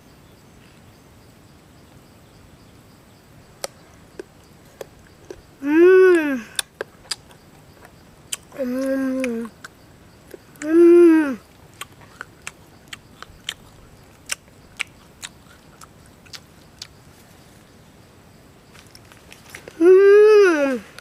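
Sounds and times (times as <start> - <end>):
crunchy fruit being chewed: 3.6 - 10.8, 11.4 - 17.5, 18.7 - 19.8
person humming: 5.6 - 6.7, 8.6 - 9.6, 10.6 - 11.4, 19.8 - 21.0.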